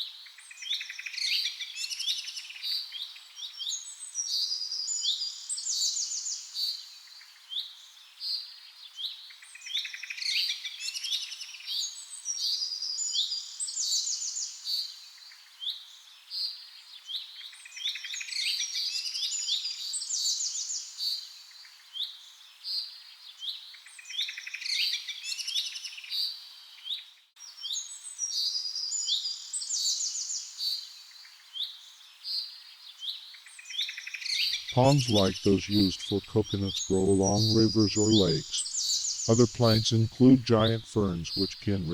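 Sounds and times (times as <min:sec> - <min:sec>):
birds chirping and trilling: 0:33.7 - 0:39.3.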